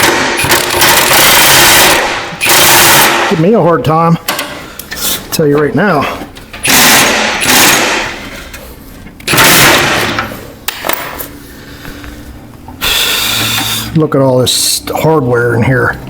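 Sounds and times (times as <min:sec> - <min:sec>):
power tool whining: 0:00.0 - 0:03.2, 0:06.6 - 0:08.2, 0:09.2 - 0:10.2, 0:12.8 - 0:14.0.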